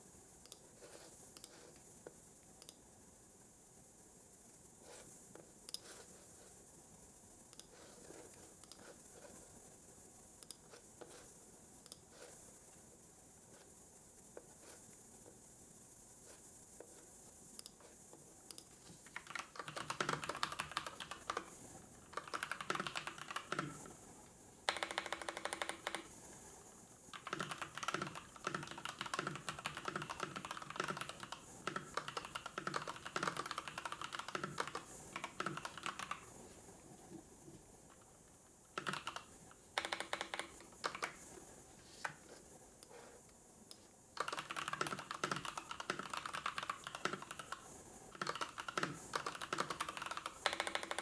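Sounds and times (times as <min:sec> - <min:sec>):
typing on computer keyboard: 0:18.5 - 0:24.0, 0:24.6 - 0:26.2, 0:27.1 - 0:36.3, 0:38.7 - 0:41.3, 0:44.2 - 0:51.0.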